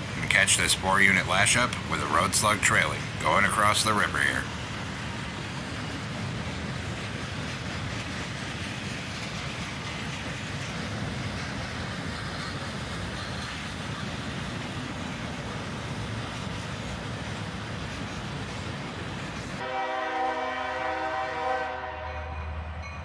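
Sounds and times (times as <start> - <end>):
freight train rumbling past: 0.0 - 23.0.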